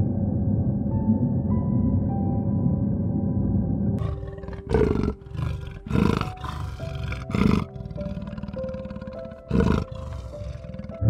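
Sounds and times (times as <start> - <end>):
soft background music: 0.0 - 11.0
animal roaring: 4.0 - 11.0.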